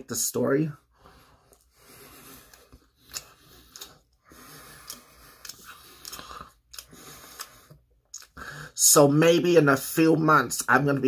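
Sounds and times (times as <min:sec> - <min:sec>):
person chewing pizza crust: 0:01.5 - 0:08.4.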